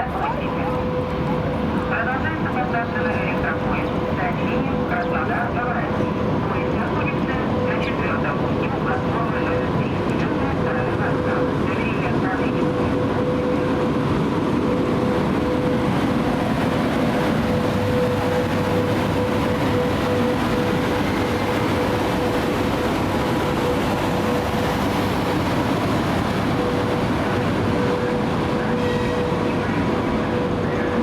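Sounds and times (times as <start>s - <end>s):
electric train machinery hum: 0.0s - 31.0s.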